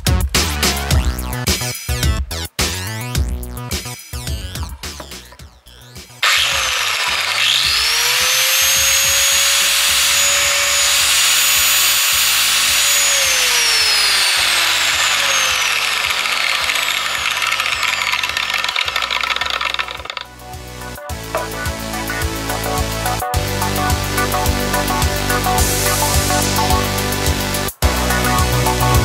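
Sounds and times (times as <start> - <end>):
angle grinder motor whine: 6.2 - 20.4
loud rasping noise: 6.2 - 20.4.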